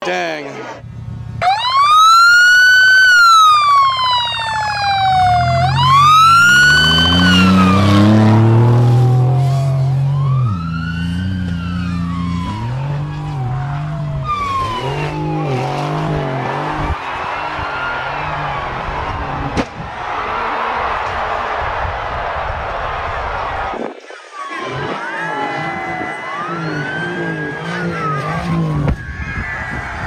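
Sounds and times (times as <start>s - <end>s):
siren wailing: 1.4s - 21.0s, 23.0s - 30.0s
vehicle engine revving: 3.1s - 19.9s, 25.4s - 29.0s.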